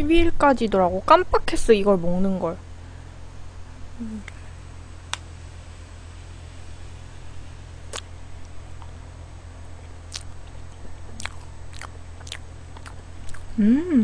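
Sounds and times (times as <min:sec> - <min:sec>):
low electrical hum: 0:00.0 - 0:14.0
chewing soft cake: 0:09.8 - 0:13.6.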